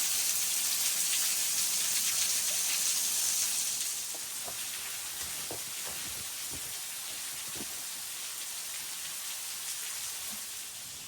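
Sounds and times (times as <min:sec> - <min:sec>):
soft knocks: 0:04.1 - 0:07.9.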